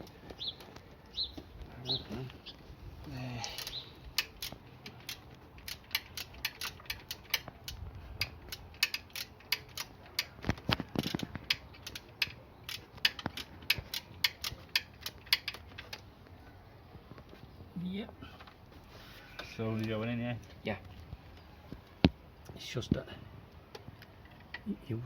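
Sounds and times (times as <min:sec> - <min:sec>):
ratchet wrench clicking: 0:03.5 - 0:10.3, 0:11.1 - 0:15.9.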